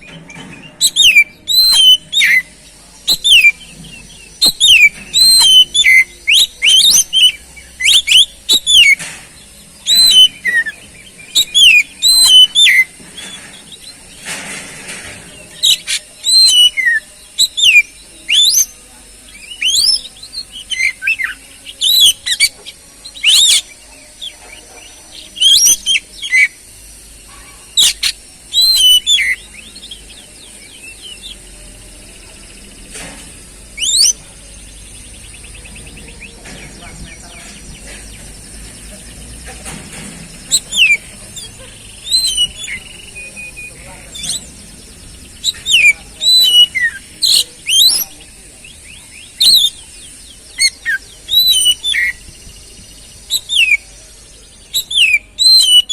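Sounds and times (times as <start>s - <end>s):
bird singing whistled notes: 0.0s - 14.2s, 15.4s - 32.9s, 33.6s - 39.4s, 40.3s - 55.9s.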